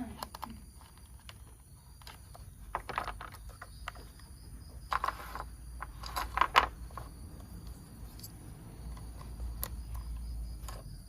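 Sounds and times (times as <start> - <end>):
plastic toy parts clicking: 0.0 - 4.2.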